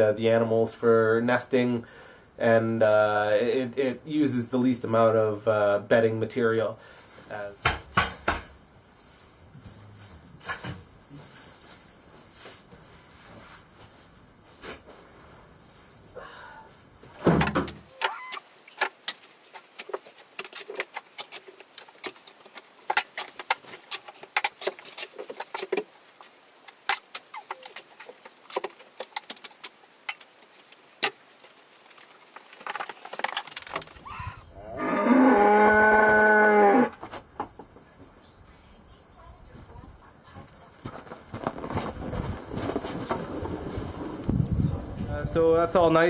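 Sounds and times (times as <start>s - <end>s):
cow mooing: 34.6s - 37.0s.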